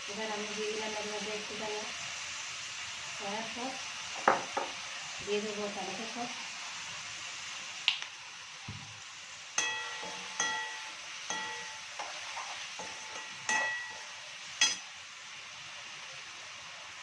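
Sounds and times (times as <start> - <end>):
food sizzling in pan: 0.0 - 17.0
metal spatula clinking on frying pan: 9.6 - 12.1, 12.8 - 14.9.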